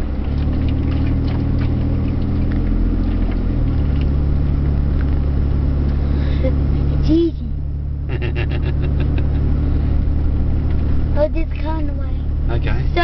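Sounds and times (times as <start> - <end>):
engine running under load: 0.0 - 13.0.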